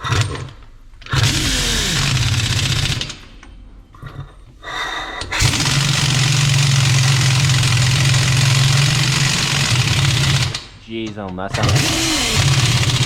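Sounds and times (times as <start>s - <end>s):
impact wrench rattling: 0.0s - 3.3s, 5.3s - 10.8s, 11.5s - 13.0s.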